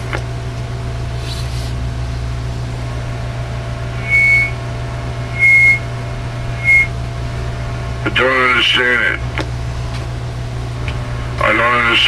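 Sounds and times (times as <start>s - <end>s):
radio low hum: 0.0s - 12.0s
short high-pitched beeps: 4.0s - 4.6s, 5.3s - 5.8s, 6.6s - 6.9s.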